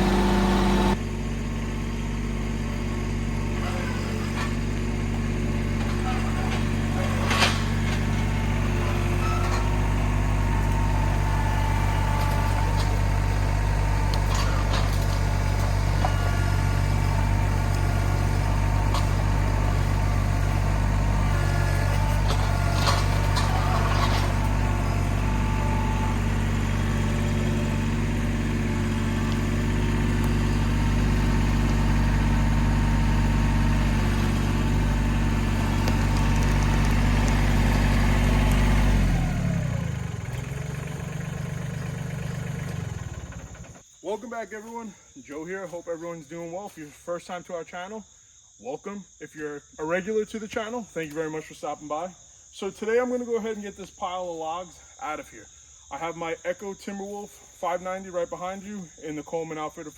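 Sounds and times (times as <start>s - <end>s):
engine idling: 0.0s - 43.9s.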